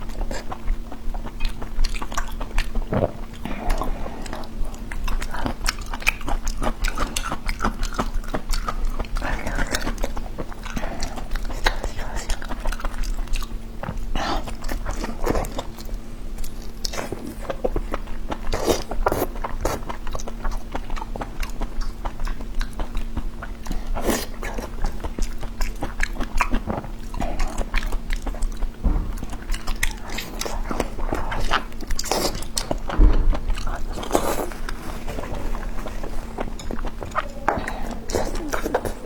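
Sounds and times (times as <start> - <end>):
close chewing and biting: 0.0 - 39.0.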